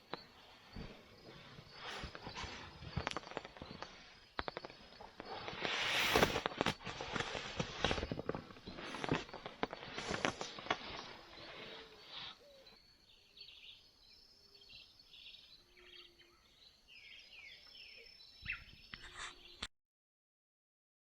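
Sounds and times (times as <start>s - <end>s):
rustling and handling noise: 0.0s - 12.6s.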